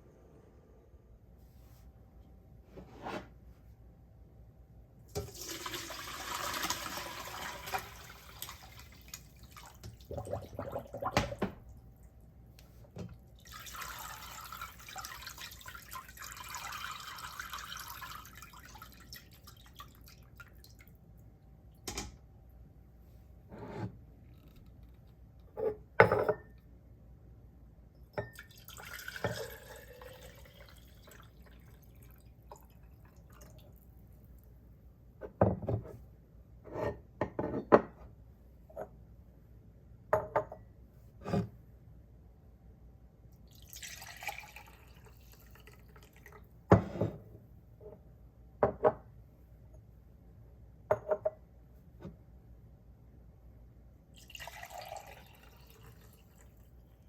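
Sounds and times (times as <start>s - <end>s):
kitchenware knocks and clinks: 25.6s - 26.5s, 36.8s - 38.0s, 50.9s - 51.4s.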